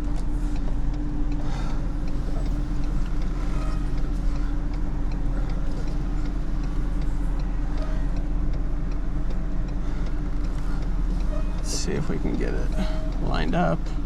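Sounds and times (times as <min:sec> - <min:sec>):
light regular ticking: 0:00.0 - 0:14.0
vehicle engine idling: 0:00.0 - 0:14.0.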